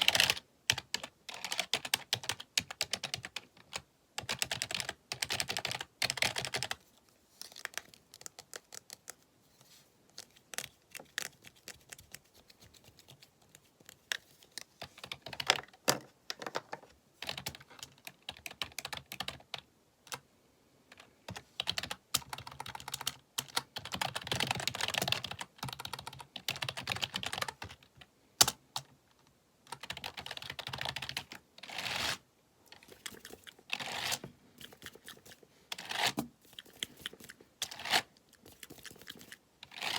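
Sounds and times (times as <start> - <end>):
typing on computer keyboard: 0.0 - 6.8, 17.2 - 20.2, 21.3 - 28.9, 29.7 - 31.4.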